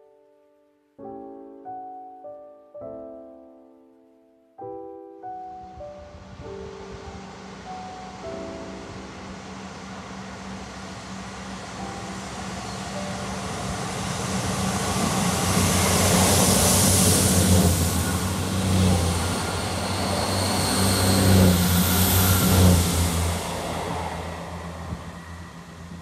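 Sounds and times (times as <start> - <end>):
train engines humming: 6.8 - 26.0
wheels on rail: 7.2 - 26.0.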